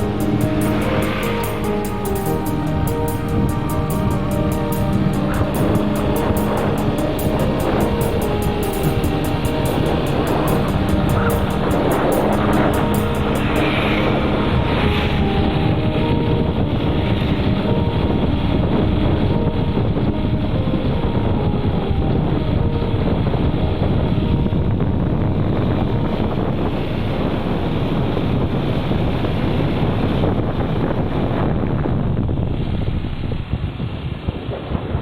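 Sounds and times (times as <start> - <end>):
moving vehicle rush: 0.0 - 18.8
steady tones: 0.0 - 28.0
wind buffeting microphone: 0.0 - 35.0.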